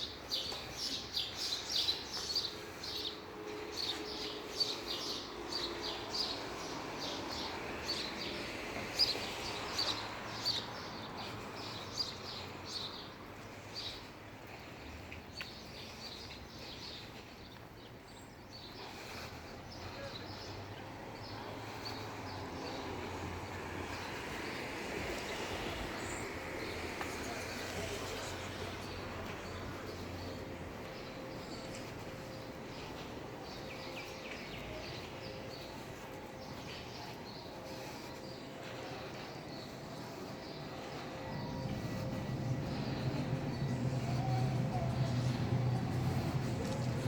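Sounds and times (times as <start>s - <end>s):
small birds chirping: 0.0s - 47.0s
steady background hum: 29.1s - 47.0s.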